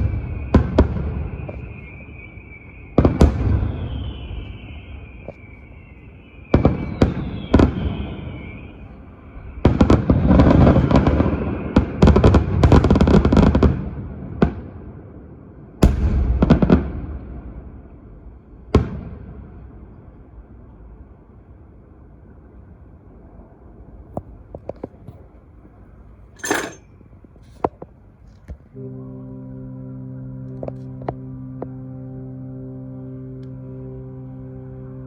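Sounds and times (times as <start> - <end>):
fireworks banging and crackling: 0.0 - 2.0, 3.0 - 5.5
firework whistle: 0.0 - 13.0.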